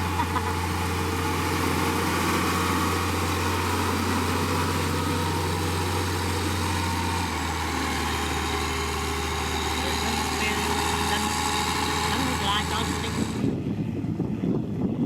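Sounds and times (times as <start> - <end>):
heavy machine engine droning: 0.0 - 15.0.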